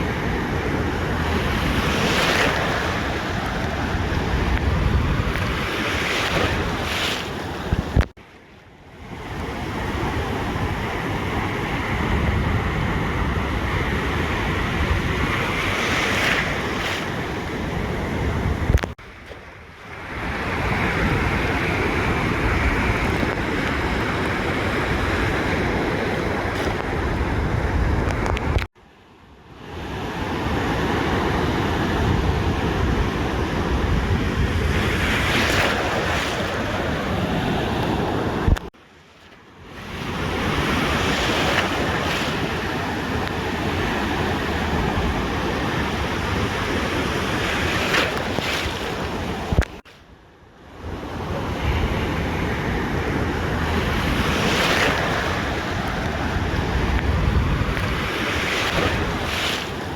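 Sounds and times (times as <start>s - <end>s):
wind buffeting microphone: 0.0s - 8.1s, 9.2s - 19.0s, 20.0s - 28.7s, 31.1s - 38.7s, 50.9s - 59.9s
ocean surf washing on beach: 0.0s - 59.9s.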